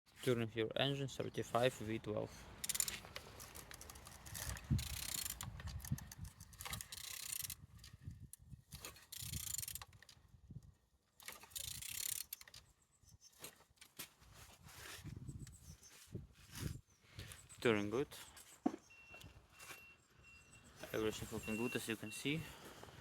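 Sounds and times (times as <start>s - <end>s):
engine turned over by hand: 2.6s - 7.6s
mechanical clicking and rasping: 2.6s - 10.2s, 11.2s - 12.7s.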